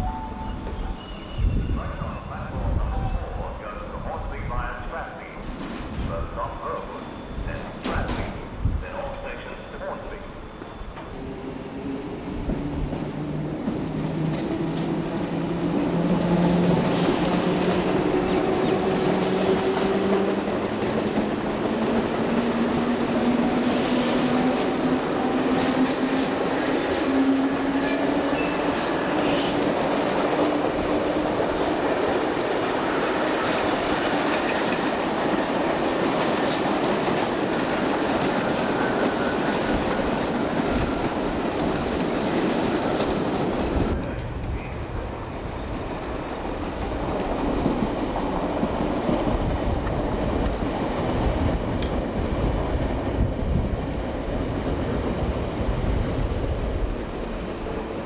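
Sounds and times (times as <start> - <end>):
train wheels clattering on rails: 4.8 - 9.0, 11.8 - 58.0.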